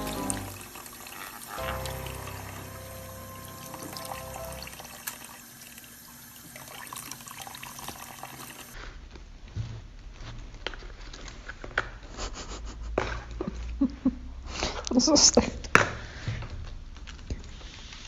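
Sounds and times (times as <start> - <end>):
running water: 0.0 - 8.8.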